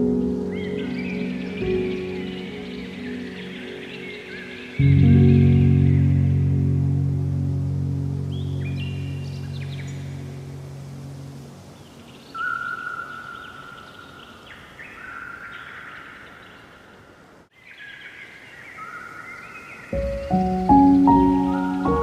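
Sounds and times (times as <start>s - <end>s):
birds singing: 0.0s - 6.5s, 8.2s - 10.6s, 11.6s - 22.0s
background music: 0.0s - 11.6s, 20.0s - 22.0s
gentle piano music: 0.0s - 12.3s, 19.9s - 22.0s
soft outdoor hiss: 0.0s - 22.0s.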